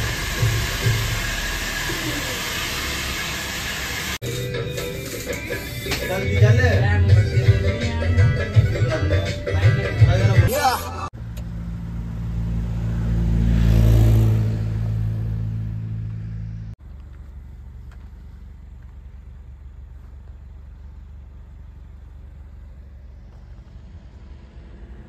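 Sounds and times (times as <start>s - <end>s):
car engine idling: 0.0s - 4.2s, 11.1s - 12.8s, 14.8s - 25.0s
low engine hum: 11.2s - 25.0s.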